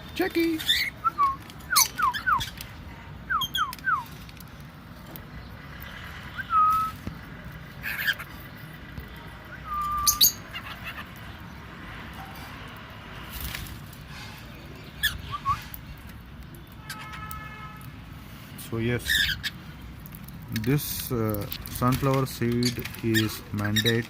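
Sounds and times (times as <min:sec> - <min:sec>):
bird chirps: 0:00.6 - 0:02.6, 0:03.3 - 0:04.1, 0:09.5 - 0:11.6, 0:14.5 - 0:17.2
whistled bird notes: 0:00.7 - 0:02.6, 0:03.3 - 0:04.1, 0:06.3 - 0:07.0, 0:09.5 - 0:10.4, 0:14.7 - 0:15.8.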